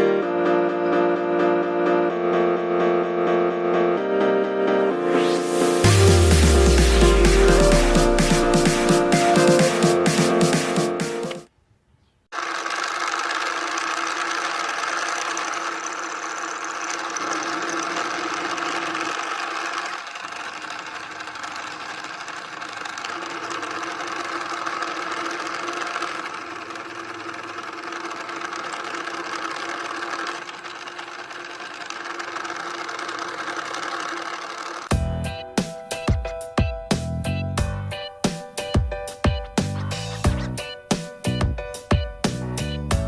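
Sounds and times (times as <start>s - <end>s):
small motor whirring with gear rattle: 12.3s - 34.9s.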